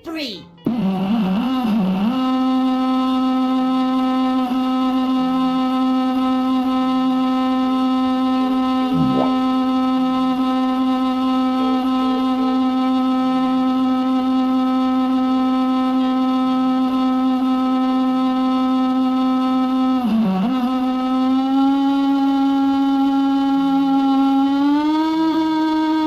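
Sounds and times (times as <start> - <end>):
synthetic voice humming: 8.9 - 9.5.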